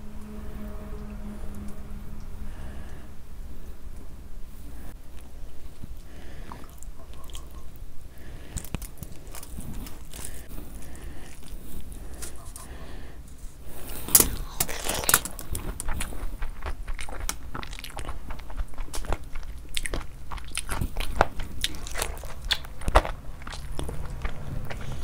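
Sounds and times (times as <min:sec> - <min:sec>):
person chewing with mouth clicks: 0:05.1 - 0:12.8, 0:13.8 - 0:25.0.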